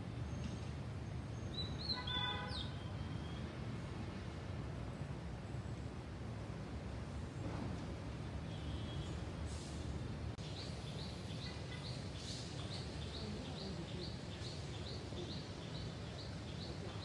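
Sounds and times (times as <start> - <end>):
bird chirping: 1.3 - 3.5, 10.4 - 17.0.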